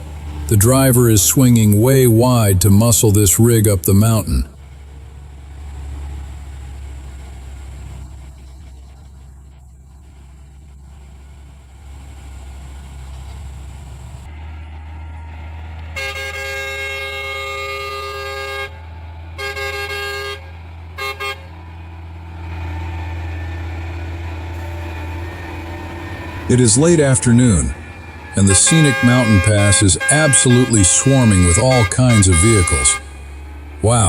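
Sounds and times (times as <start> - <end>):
traffic engine rumble: 0.0 - 34.0
vehicle horn blasts: 15.9 - 21.6, 24.5 - 34.0.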